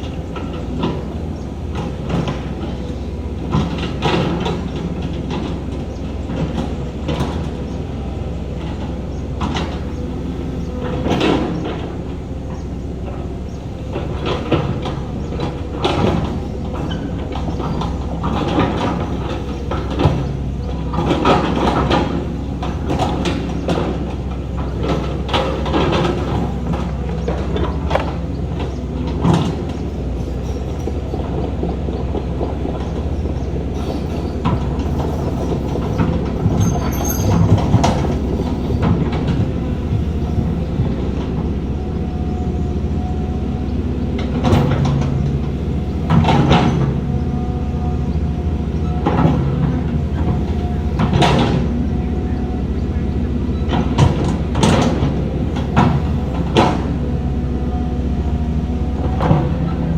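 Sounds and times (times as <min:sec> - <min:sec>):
diesel earthmoving machinery running: 0:00.0 - 0:59.9
metallic clanks and knocks: 0:08.5 - 0:41.5, 0:44.2 - 0:48.1.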